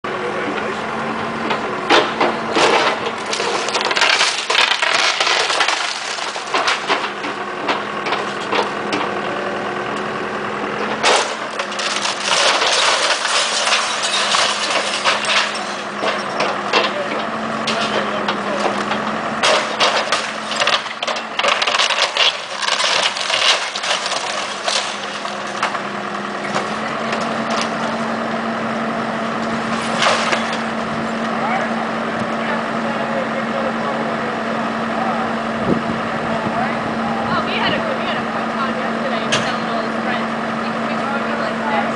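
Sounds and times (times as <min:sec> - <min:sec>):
wood cracking and splintering: 0:01.9 - 0:10.0, 0:10.8 - 0:28.2, 0:29.4 - 0:31.3
debris crashing down: 0:02.0 - 0:08.8, 0:11.0 - 0:28.0, 0:29.6 - 0:30.8.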